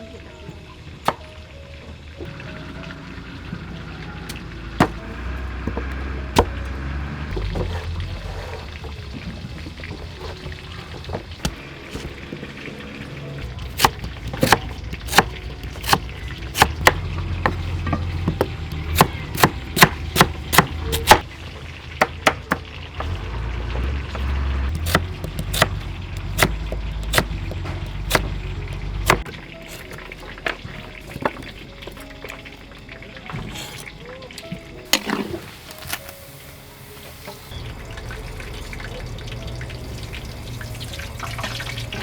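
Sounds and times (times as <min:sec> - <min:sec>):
knife chopping on wooden board: 0:04.8 - 0:05.0, 0:13.6 - 0:21.2, 0:24.8 - 0:28.4, 0:29.0 - 0:30.0.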